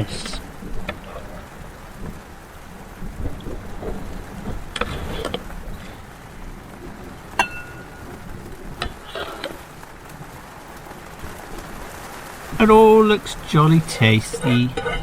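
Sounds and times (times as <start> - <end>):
metal utensil striking pan: 7.4 - 7.9, 14.3 - 15.0.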